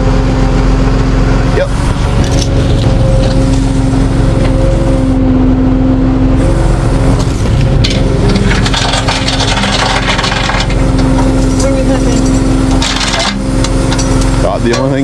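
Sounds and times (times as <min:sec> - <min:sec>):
vehicle engine running: 0:00.0 - 0:15.0
crackling and scraping noises: 0:02.2 - 0:05.1, 0:07.1 - 0:15.0.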